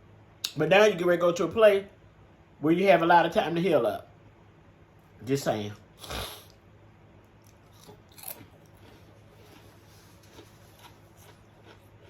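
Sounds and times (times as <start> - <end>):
soft crunches and mouth clicks: 7.3 - 12.0
person chewing food: 7.4 - 12.0.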